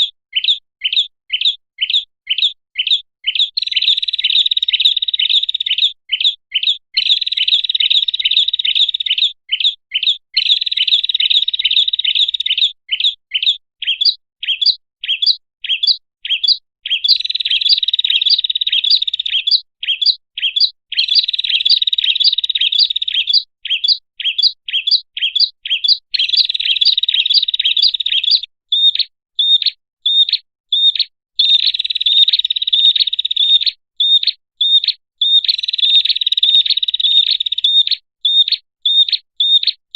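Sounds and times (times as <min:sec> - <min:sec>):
bird sharp high chirps: 0:00.0 - 0:39.8.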